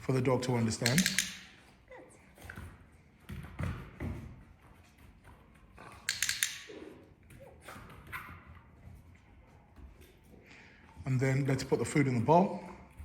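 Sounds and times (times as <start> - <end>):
sharp clicks: 0.8 - 1.6, 6.1 - 6.8.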